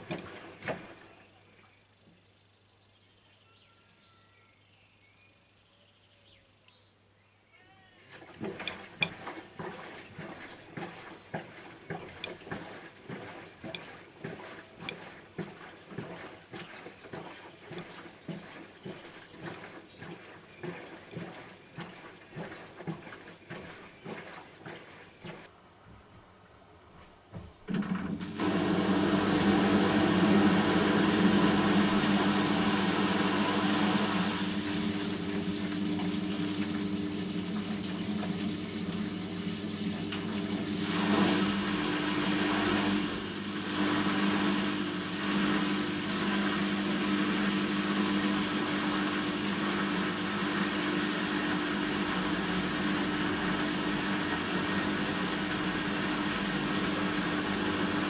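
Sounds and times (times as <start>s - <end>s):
washing machine hum: 0.0s - 1.3s, 8.0s - 25.5s, 27.6s - 58.0s
water swishing: 8.1s - 25.5s.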